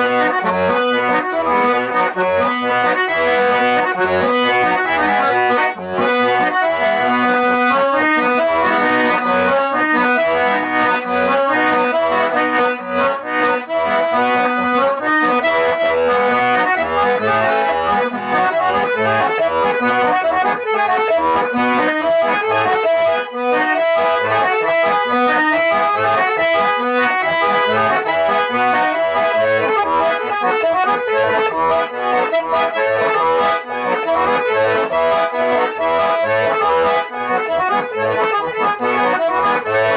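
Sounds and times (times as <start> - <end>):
accordion playing folk tune: 0.0 - 39.9.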